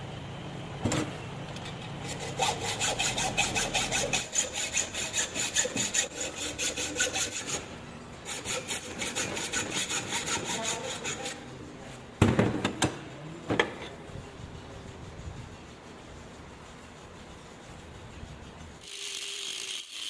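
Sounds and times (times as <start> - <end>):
hand saw cutting steel: 2.0 - 11.5, 18.8 - 20.0.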